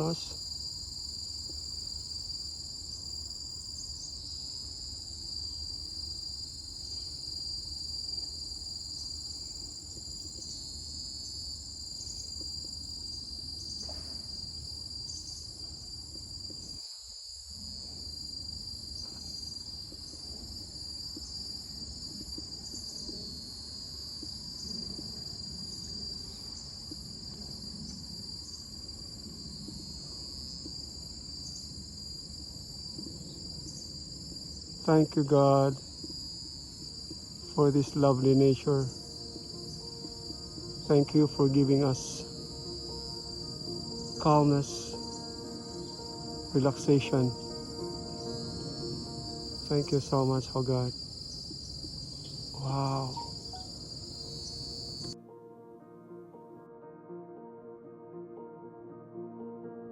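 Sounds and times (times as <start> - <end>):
insects buzzing: 0.0 - 55.2.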